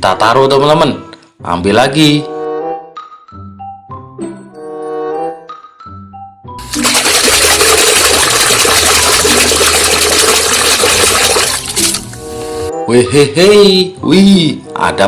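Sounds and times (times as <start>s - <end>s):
background music: 0.0s - 15.0s
water gushing loudly: 6.6s - 12.2s.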